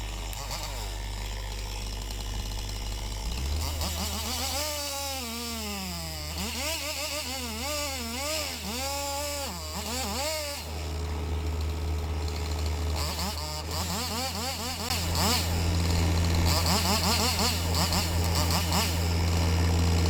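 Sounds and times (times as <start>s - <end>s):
excavator diesel engine running: 10.4s - 20.0s.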